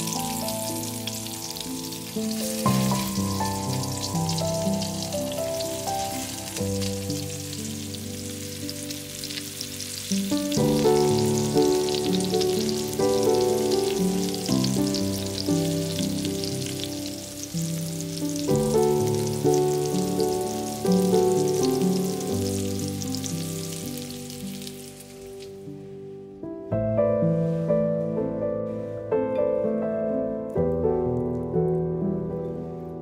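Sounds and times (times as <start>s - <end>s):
food frying in oil: 0.0s - 25.6s
instrumental music: 0.0s - 33.0s.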